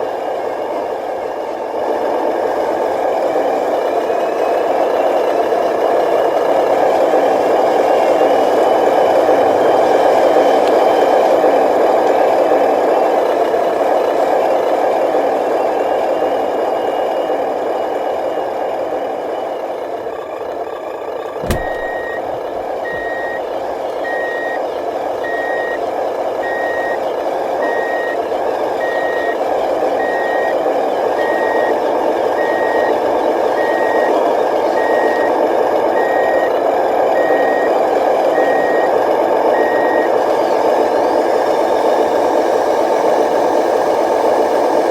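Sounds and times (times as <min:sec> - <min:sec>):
electric motor and gears whining: 0:21.4 - 0:23.7
reversing beeper: 0:21.4 - 0:24.6, 0:25.2 - 0:25.8.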